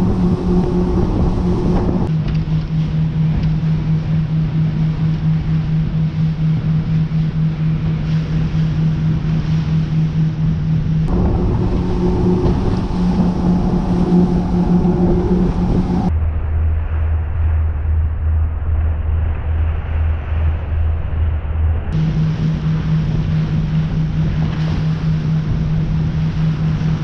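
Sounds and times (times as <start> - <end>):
boat engine running: 0.0 - 16.1, 22.0 - 27.0
water noise: 0.0 - 16.1, 22.0 - 27.0
wind: 0.0 - 27.0.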